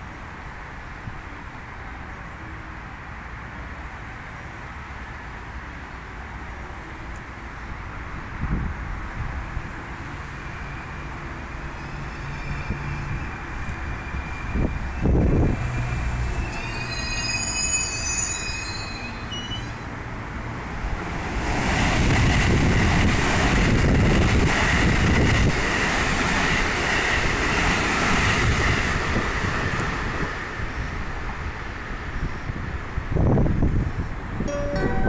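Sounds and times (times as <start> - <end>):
rush of wheels on rail: 4.9 - 34.4
train whining as it slows: 9.1 - 35.0.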